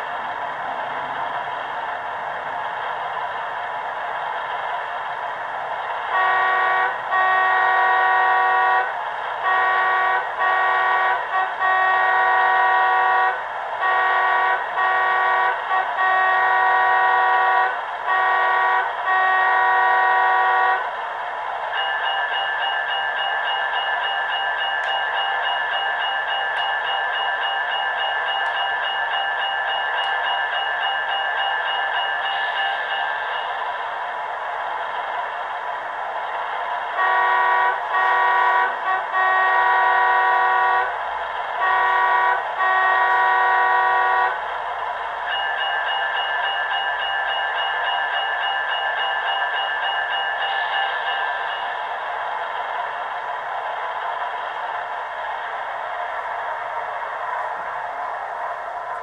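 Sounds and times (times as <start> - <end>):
diesel locomotive air horn blasts: 6.1 - 20.9, 37.0 - 41.0, 41.6 - 44.4.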